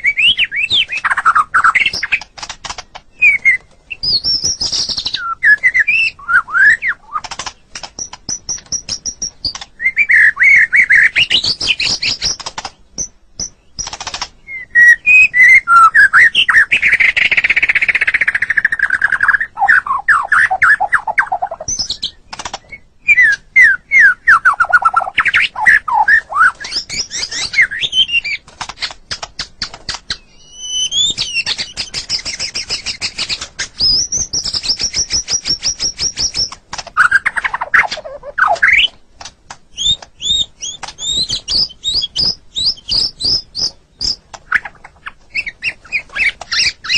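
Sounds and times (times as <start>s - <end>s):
songbird singing: 0.0s - 46.9s
bird rattling clicks: 13.4s - 14.4s
bird high trill: 33.8s - 39.0s.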